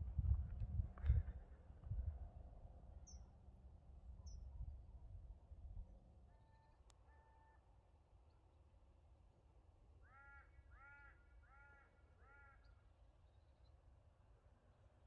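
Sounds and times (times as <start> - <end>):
faint bird calls: 10.0 - 12.9.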